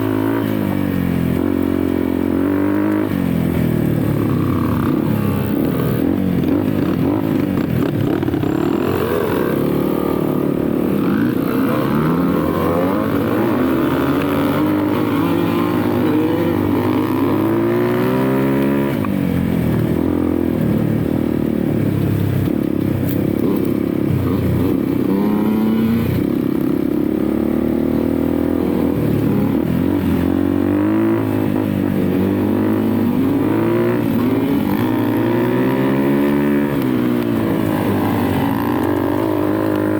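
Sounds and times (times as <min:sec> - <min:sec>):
clatter over rough ground: 0:04.0 - 0:15.0
dirt bike engine revving: 0:04.1 - 0:19.0, 0:23.4 - 0:39.9.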